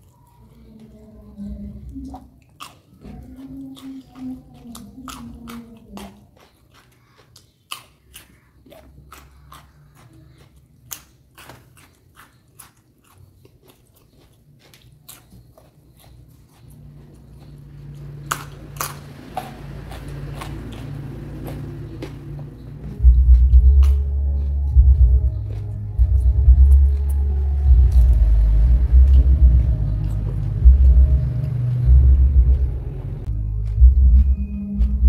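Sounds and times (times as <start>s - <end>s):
person crunching raw vegetables: 1.8s - 35.0s
low steady hum: 13.4s - 35.0s.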